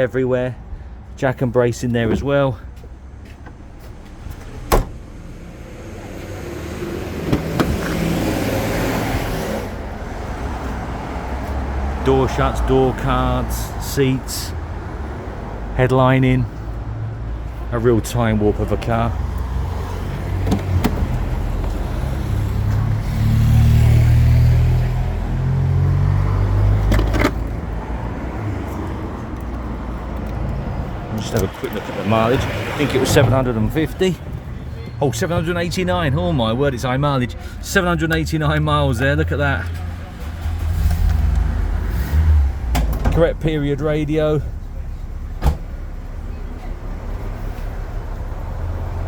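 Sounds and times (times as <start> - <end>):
road vehicle passing: 2.6 - 49.0
car engine running: 3.3 - 8.8
sharp thump: 4.6 - 5.0.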